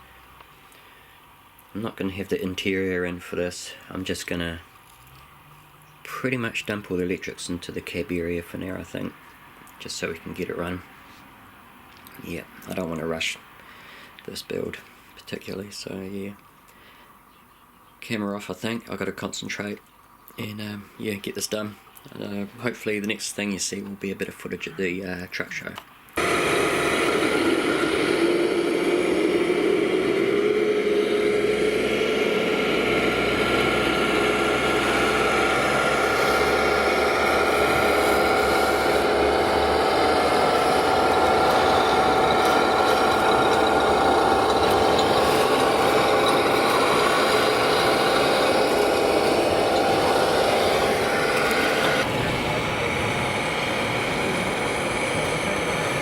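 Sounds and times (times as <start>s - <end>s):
diesel truck engine from speaker: 0.0s - 11.2s, 26.2s - 56.0s.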